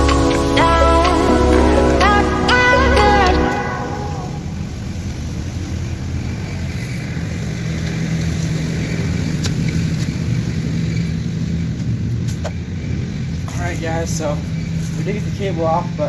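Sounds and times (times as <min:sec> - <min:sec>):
faint hum: 0:00.0 - 0:06.7
vehicle engine rumbling: 0:00.0 - 0:16.0.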